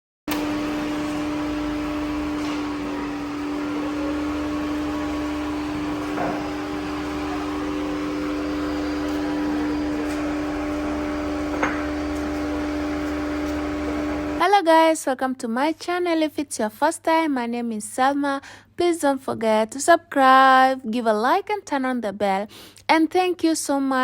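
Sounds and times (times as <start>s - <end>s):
steady mechanical hum: 0.3s - 14.4s.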